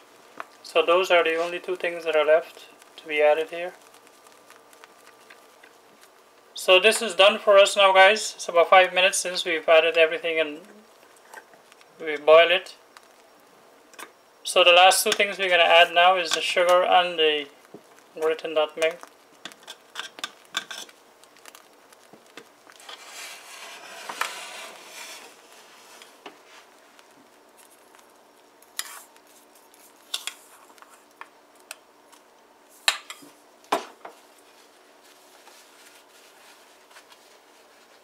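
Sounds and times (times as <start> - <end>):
spoon stirring porridge: 19.0 - 32.2.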